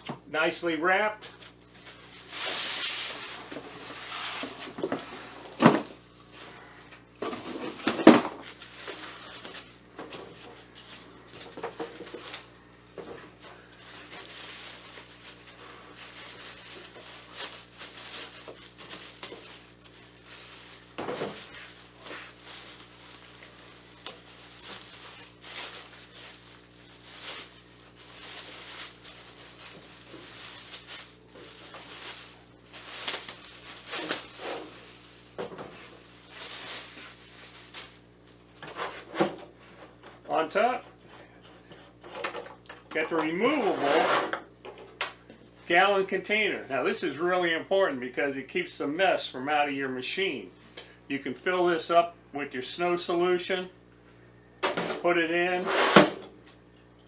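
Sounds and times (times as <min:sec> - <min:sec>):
packaging crinkling: 0:07.6 - 0:12.6, 0:13.3 - 0:38.6.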